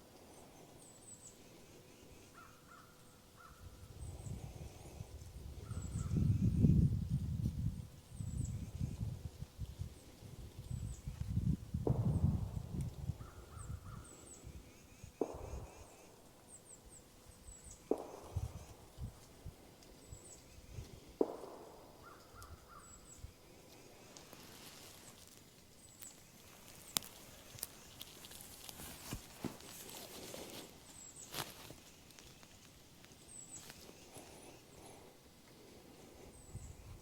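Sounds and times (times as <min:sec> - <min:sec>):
faint clicks: 0:21.2 - 0:30.7.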